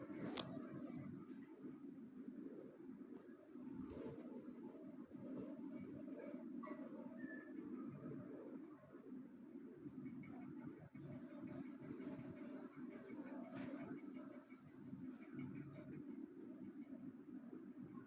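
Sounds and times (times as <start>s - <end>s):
cricket trilling: 0.0s - 18.0s.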